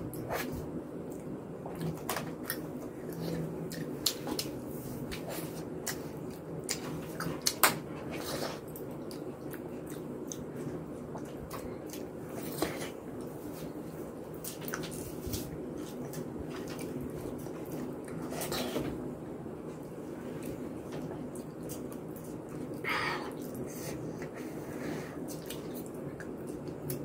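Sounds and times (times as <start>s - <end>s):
steady low hum: 0.0s - 27.0s
wet chewing with smacks: 0.1s - 13.8s, 14.4s - 18.7s, 25.2s - 27.0s.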